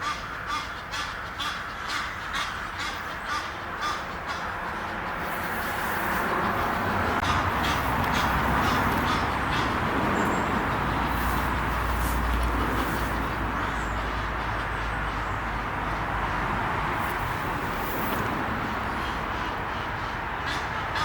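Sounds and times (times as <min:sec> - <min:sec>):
geese honking: 0:00.0 - 0:21.0
rushing noise with low rumble: 0:01.2 - 0:21.0.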